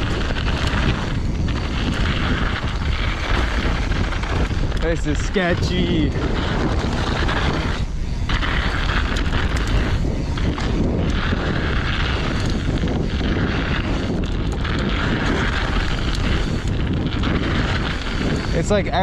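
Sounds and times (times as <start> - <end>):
tyres rushing on dirt trail: 0.0 - 19.0
wind buffeting microphone: 0.0 - 19.0.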